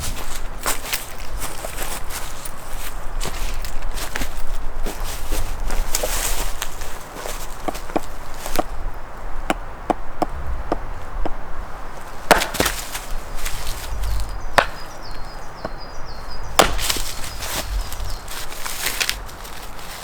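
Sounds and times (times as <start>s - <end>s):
heavy strikes on wood: 9.4s - 11.4s, 12.2s - 12.9s, 14.6s - 14.9s, 16.6s - 17.1s
wood splintering crackle: 12.1s - 14.9s, 16.6s - 20.0s
light sharp chopping knocks: 12.3s - 13.0s, 14.6s - 14.9s, 16.6s - 17.3s.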